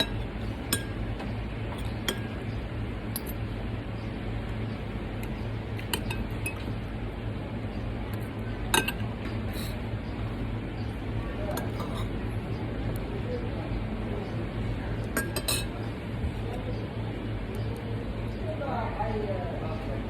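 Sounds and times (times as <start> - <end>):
low background hum: 0.0 - 20.0
cutlery clinking on plates: 8.8 - 9.8, 11.5 - 12.1, 15.1 - 15.8.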